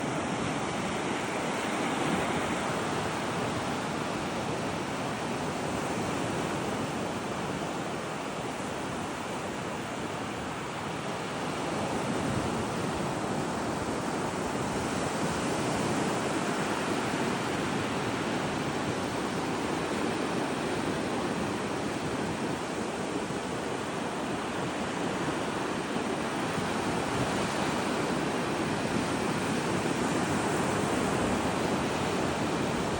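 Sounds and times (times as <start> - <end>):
ocean surf breaking: 0.0 - 7.7, 8.3 - 32.9
wind rumble on microphone: 0.0 - 32.9.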